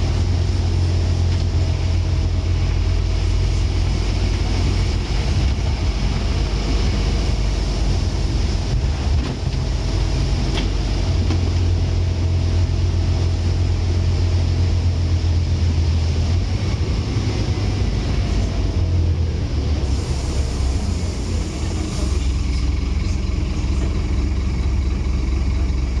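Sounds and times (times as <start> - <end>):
bus diesel engine drone: 0.0 - 26.0.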